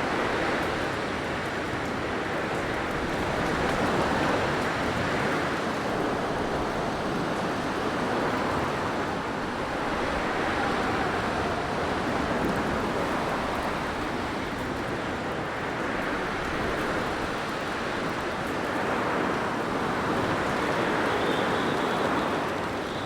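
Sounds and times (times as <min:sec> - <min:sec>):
blizzard wind rushing: 0:02.7 - 0:21.2
faint high wind whistle: 0:06.0 - 0:14.4, 0:20.0 - 0:23.0.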